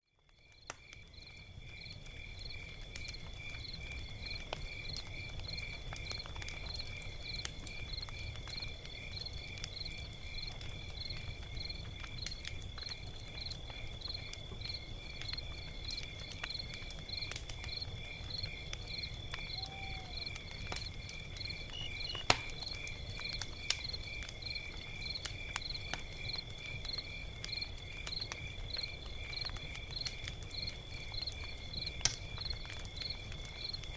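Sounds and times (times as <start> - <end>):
log fire crackling: 0.1 - 33.9
crickets chirping: 0.4 - 33.9.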